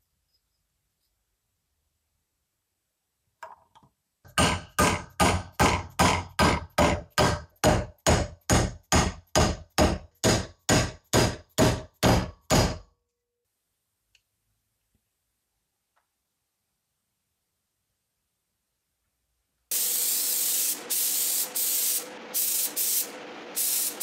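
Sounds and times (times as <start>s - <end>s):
hammer striking: 4.3s - 12.9s.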